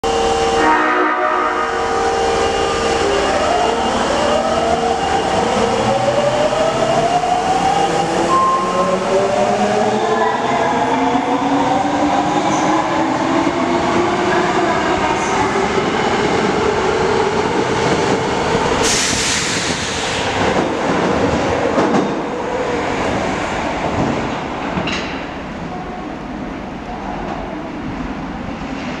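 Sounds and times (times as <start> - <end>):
loud rushing noise: 14.9 - 24.3.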